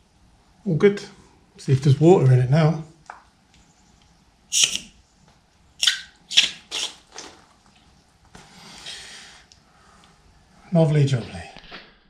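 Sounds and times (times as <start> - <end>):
tap spitting hissing spurts: 5.8 - 7.6.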